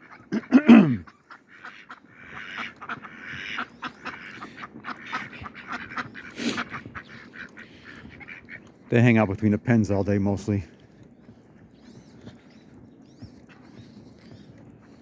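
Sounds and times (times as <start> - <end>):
ducks quacking: 0.0 - 10.1.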